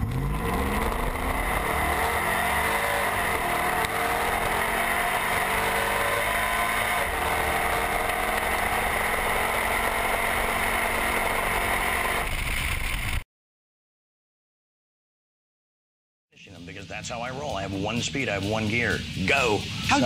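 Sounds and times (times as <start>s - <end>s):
pickup truck engine running: 0.0s - 13.2s.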